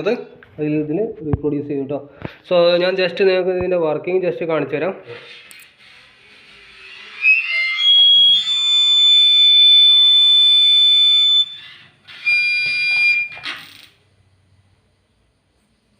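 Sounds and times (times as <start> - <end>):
high-pitched electronic whistle: 6.6 - 13.6.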